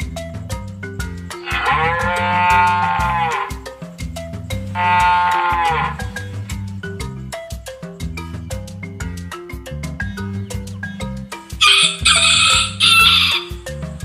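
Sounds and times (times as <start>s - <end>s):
background music with beat: 0.0s - 14.0s
cow mooing: 1.4s - 3.6s, 4.8s - 6.2s.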